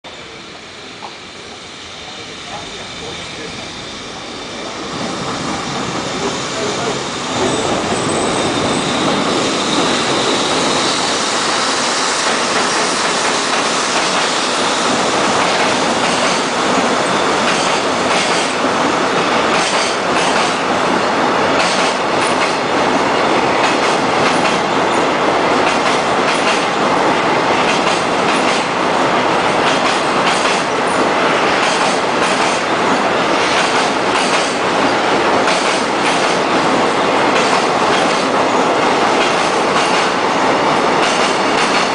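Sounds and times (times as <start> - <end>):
train wheels rumbling on rail: 0.1 - 41.9
high wheel squeal: 0.7 - 15.1
clickety-clack over rail joints: 12.2 - 20.7, 21.5 - 41.9.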